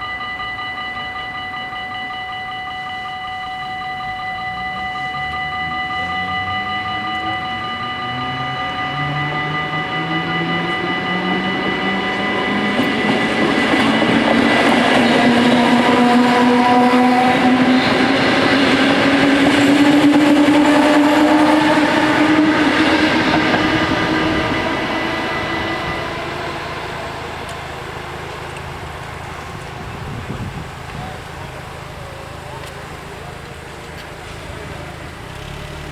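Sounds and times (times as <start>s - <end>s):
crossing bells ringing: 0.0s - 35.8s
electric train motor whine: 0.0s - 35.9s.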